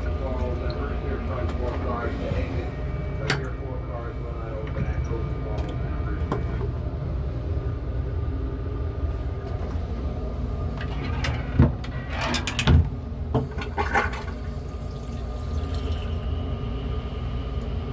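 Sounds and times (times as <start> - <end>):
toilet flushing: 0.0 - 4.1, 10.4 - 17.9.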